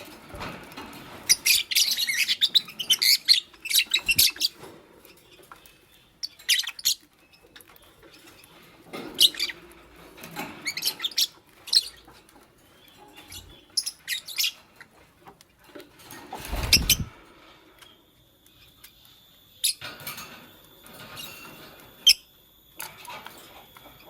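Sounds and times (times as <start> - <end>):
lovebirds chirping: 1.3 - 9.6, 16.3 - 17.2.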